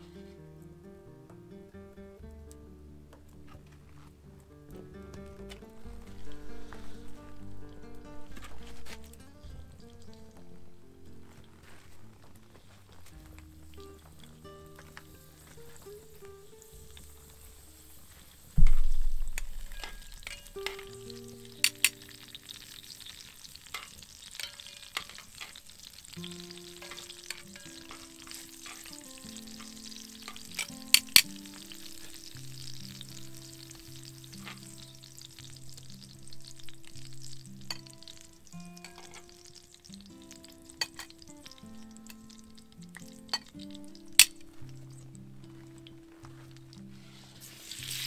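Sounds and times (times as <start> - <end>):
soft background music: 0.0 - 48.0
food sizzling in a pot: 4.8 - 48.0
deep boom: 18.6 - 19.7
stirring with sharp clinks: 19.3 - 32.2, 40.7 - 42.4, 43.0 - 44.6.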